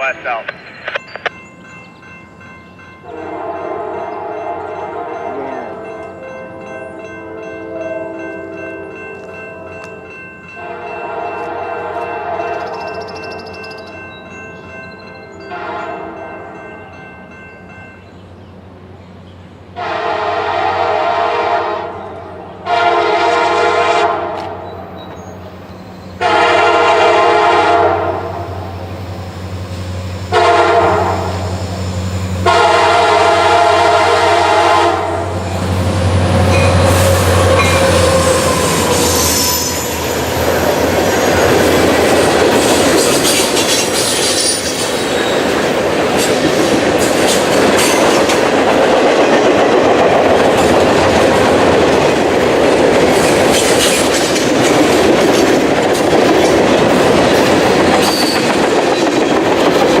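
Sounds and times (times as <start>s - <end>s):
locomotive air horn: 3.1s - 5.9s, 10.6s - 12.6s, 15.5s - 16.3s, 19.8s - 24.6s, 26.2s - 28.6s, 30.3s - 35.4s
freight cars rolling on rails: 34.4s - 60.0s.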